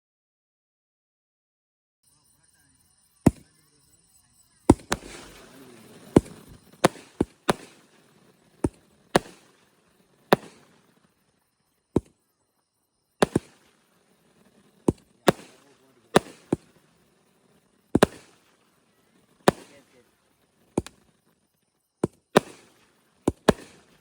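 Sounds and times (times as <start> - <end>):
firework cake sharp bangs: 4.7 - 12.2, 13.2 - 21.4, 22.0 - 24.0
hissing firework trail: 4.7 - 12.3, 13.0 - 24.0.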